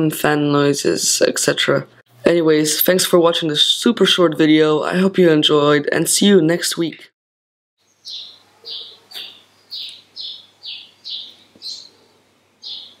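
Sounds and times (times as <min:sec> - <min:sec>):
bird chirping: 0:07.8 - 0:13.0.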